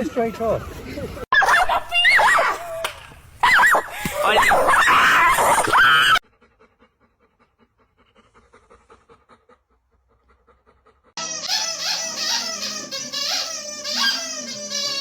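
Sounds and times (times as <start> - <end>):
dog whining: 3.4 - 6.2, 11.2 - 15.0
dog panting: 6.2 - 15.0.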